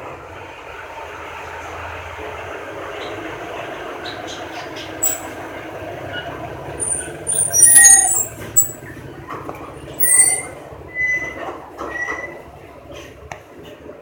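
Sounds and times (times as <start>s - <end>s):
high-pitched squealing bird calls: 5.0s - 5.4s, 6.8s - 8.8s, 10.0s - 11.3s.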